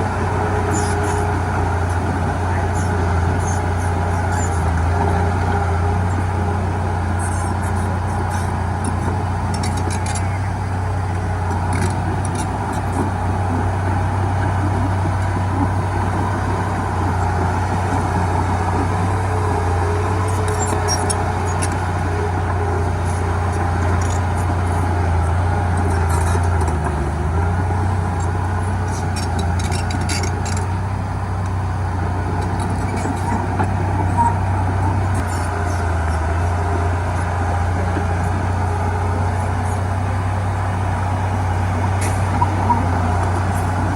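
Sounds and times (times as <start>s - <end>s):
diesel machinery engine running: 0.0s - 43.9s
light clicks and clatter: 7.2s - 10.5s, 11.5s - 13.1s, 20.2s - 25.1s, 25.7s - 27.1s, 28.9s - 30.8s.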